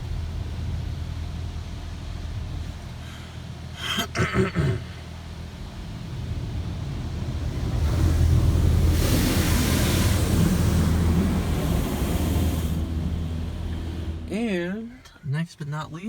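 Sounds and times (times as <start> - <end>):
steady low hum: 0.0 - 16.0
high-pressure spray hitting car: 7.9 - 13.2.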